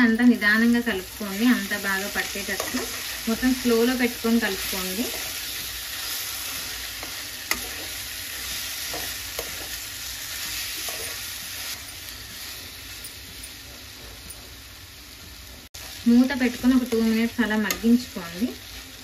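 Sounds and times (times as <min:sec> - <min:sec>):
vegetables sizzling in oil: 0:00.0 - 0:19.0
spatula scraping and knocking pan: 0:01.8 - 0:11.4.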